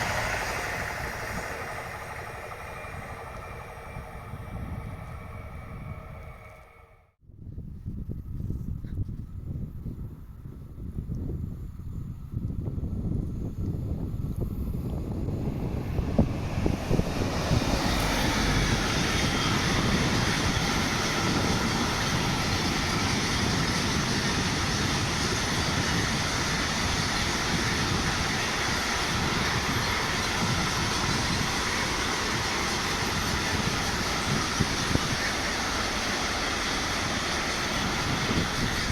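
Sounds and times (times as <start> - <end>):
train knocks: 0.0 - 6.5, 14.8 - 38.9
train wheels rolling on rails: 0.0 - 6.9, 12.8 - 38.9.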